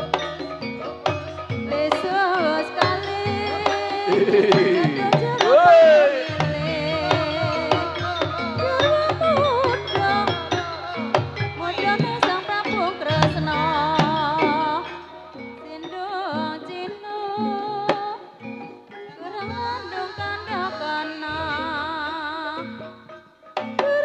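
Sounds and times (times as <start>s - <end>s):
gamelan tones: 0.0s - 24.0s
wavering high melody: 0.0s - 24.0s
hand drum strokes: 1.1s - 10.5s.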